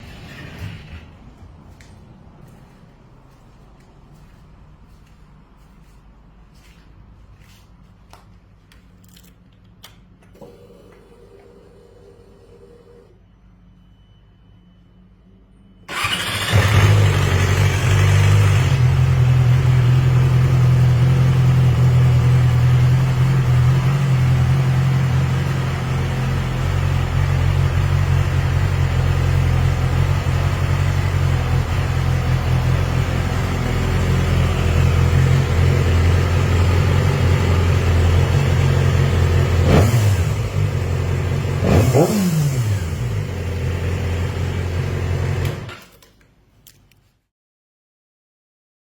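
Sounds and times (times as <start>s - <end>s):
motorcycle engine idling and revving: 15.9s - 45.7s.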